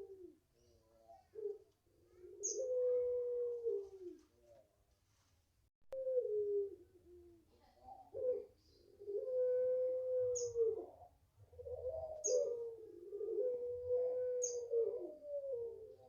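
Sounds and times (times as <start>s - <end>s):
dove cooing: 0.0s - 4.7s, 5.9s - 16.0s
small bird chirping: 2.4s - 2.8s, 10.4s - 10.6s, 12.2s - 12.6s, 14.4s - 14.7s.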